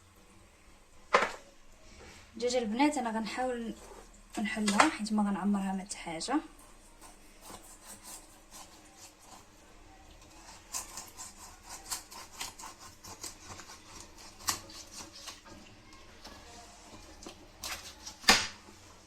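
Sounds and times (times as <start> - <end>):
raw chicken being cut: 6.8 - 9.6, 10.2 - 15.6, 16.2 - 18.6.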